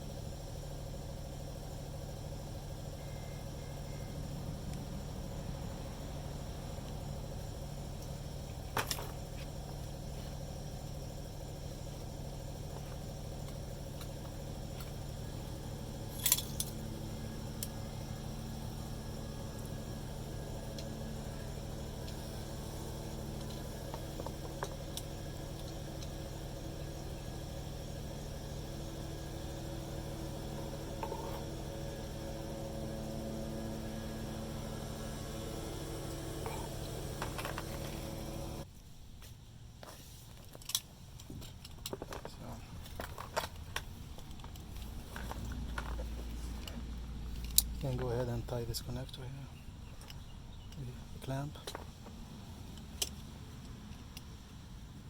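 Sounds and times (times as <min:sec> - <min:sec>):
steady low hum: 0:00.0 - 0:55.0
metal parts clinking: 0:16.1 - 0:16.8.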